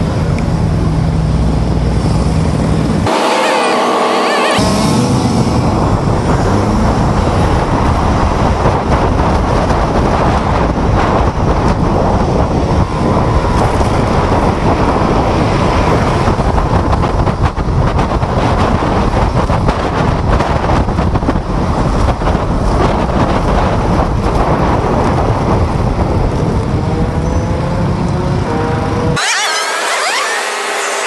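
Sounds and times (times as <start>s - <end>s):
road noise: 0.0s - 31.0s
wind buffeting microphone: 4.8s - 29.2s.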